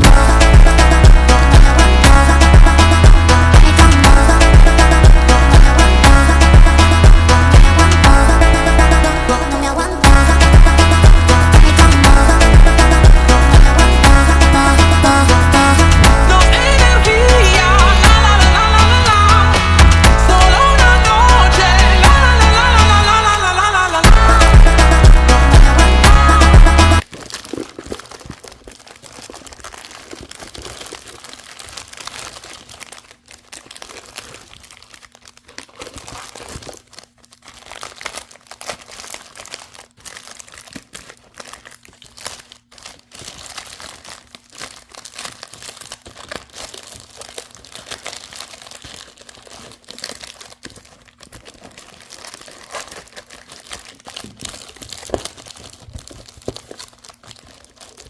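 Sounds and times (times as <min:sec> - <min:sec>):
plastic bags crinkling: 0:00.0 - 0:03.4, 0:27.0 - 0:58.0.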